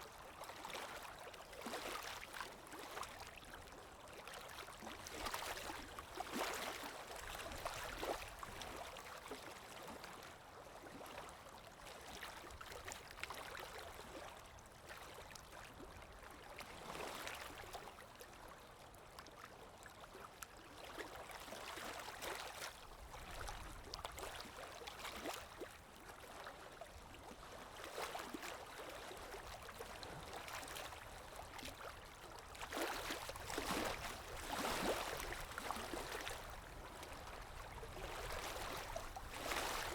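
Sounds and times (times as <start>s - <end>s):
calm sea waves washing: 32.9s - 39.9s.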